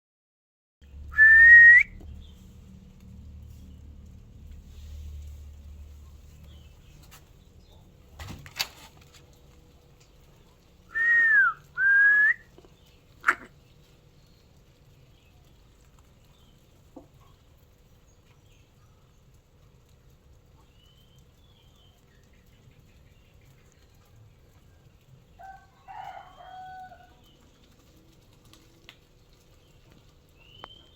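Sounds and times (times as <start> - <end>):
whistled notes: 1.1 - 2.0, 10.9 - 12.4.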